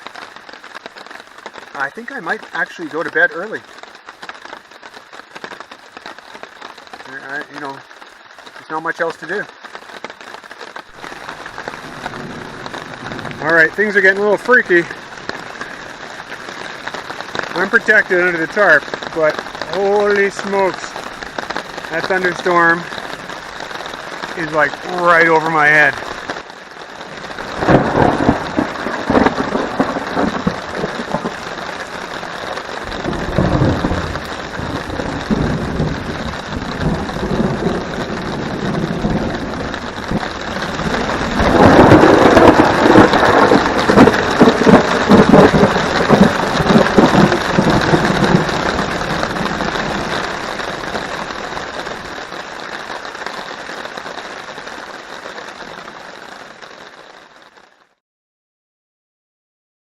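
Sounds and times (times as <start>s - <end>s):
heavy rain drumming on a tarp: 0.0s - 58.0s
thunder rumbling: 10.9s - 54.0s.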